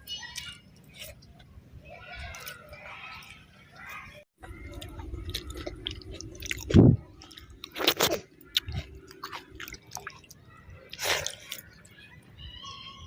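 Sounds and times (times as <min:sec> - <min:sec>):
person chewing food: 0:04.4 - 0:11.9.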